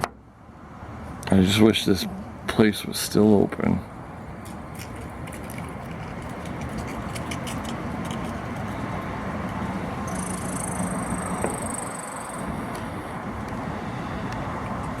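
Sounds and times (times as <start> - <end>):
vehicle driving by: 6.8 - 15.0.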